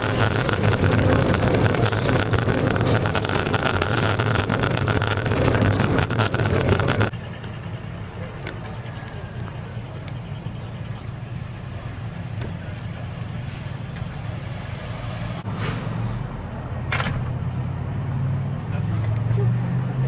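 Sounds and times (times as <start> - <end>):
longboard wheels rumbling on pavement: 0.0 - 14.4.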